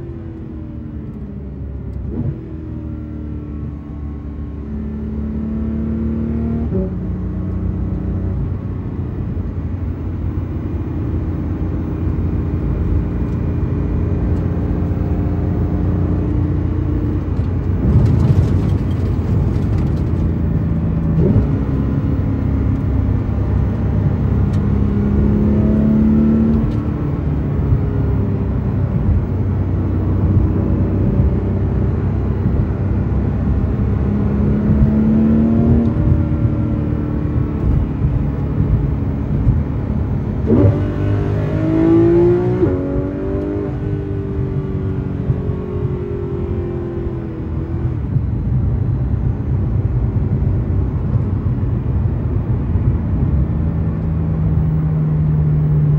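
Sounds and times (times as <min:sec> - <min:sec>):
car engine accelerating: 0:00.0 - 0:55.9.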